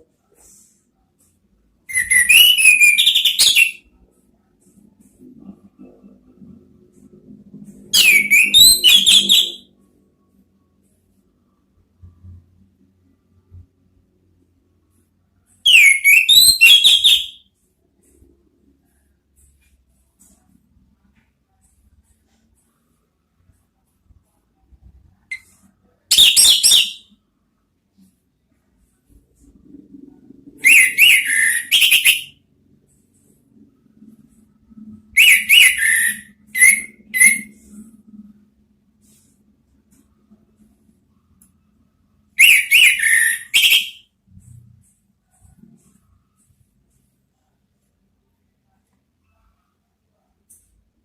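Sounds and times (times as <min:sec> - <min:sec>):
thrush whistled song: 0:01.8 - 0:03.9, 0:08.0 - 0:09.7, 0:15.6 - 0:17.5, 0:25.3 - 0:27.2, 0:30.6 - 0:32.4, 0:35.1 - 0:37.6, 0:42.4 - 0:44.1.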